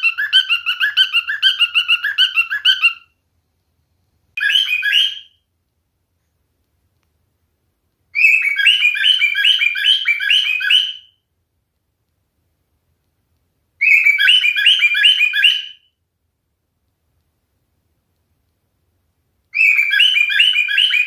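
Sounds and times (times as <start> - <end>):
cockatiel chirping: 0.0 - 3.2, 4.4 - 5.4, 8.2 - 11.2, 13.8 - 15.9, 19.5 - 21.0.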